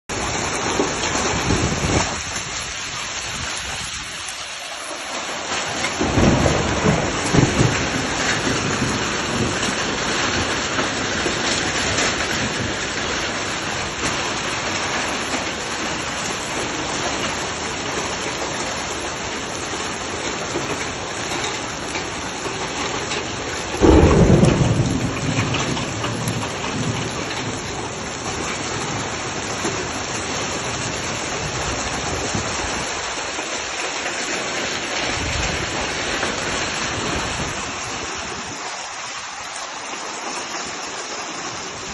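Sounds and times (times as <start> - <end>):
heavy rain and hail: 0.0 - 41.9.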